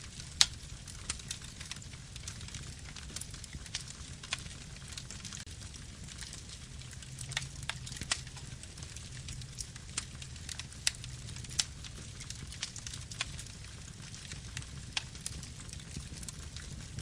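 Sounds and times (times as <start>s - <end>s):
burning wood crackles and pops: 0.0s - 17.0s
campfire flames rumbling: 0.0s - 17.0s.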